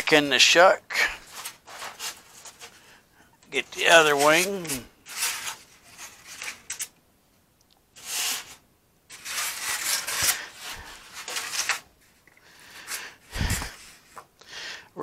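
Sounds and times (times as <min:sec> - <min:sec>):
foam rubbing and scraping: 0:01.2 - 0:02.9, 0:03.6 - 0:06.7, 0:08.0 - 0:12.2.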